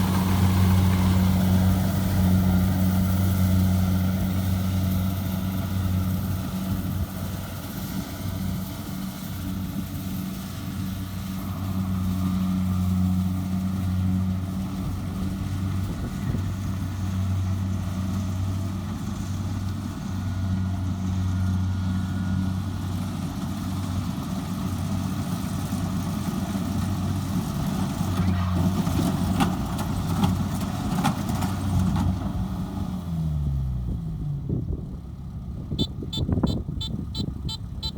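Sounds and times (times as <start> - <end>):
diesel engine running: 0.0 - 37.9.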